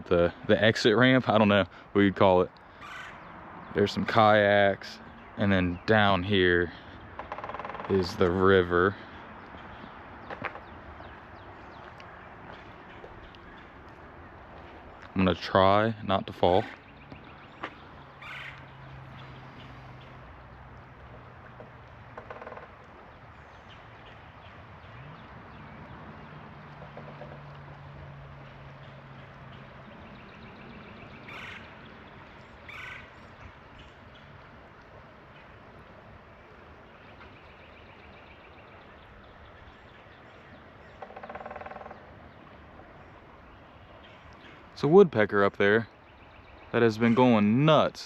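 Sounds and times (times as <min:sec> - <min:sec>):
outdoor background noise: 0:00.0 - 0:48.0
faint bird calls: 0:02.6 - 0:03.8, 0:16.4 - 0:20.6, 0:28.3 - 0:44.8
woodpecker drumming on wood: 0:07.0 - 0:08.4, 0:09.5 - 0:11.5, 0:21.0 - 0:23.2, 0:26.0 - 0:29.7, 0:40.3 - 0:42.5
footsteps scuffing: 0:11.8 - 0:13.2
flowing river water: 0:16.4 - 0:41.0.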